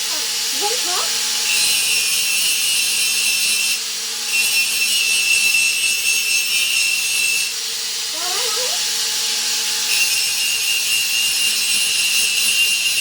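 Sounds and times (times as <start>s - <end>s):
angle grinder grinding steel: 0.0s - 13.0s.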